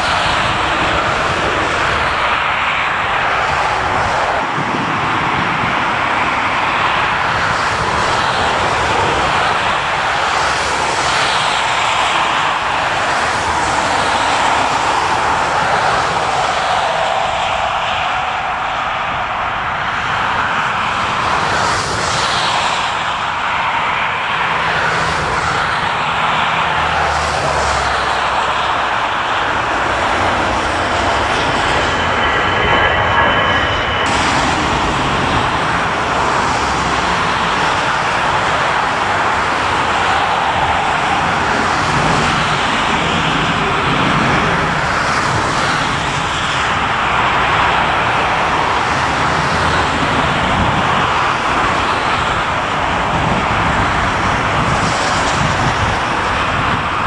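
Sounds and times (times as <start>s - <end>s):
jet engines at takeoff power: 0.0s - 57.0s
faint high whine: 24.6s - 44.6s.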